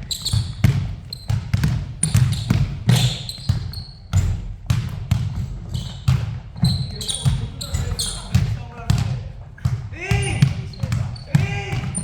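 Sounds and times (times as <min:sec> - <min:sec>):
shoe squeaks: 0:00.0 - 0:04.5, 0:05.6 - 0:08.5, 0:10.1 - 0:12.0
basketball dribbling on court: 0:00.0 - 0:12.0.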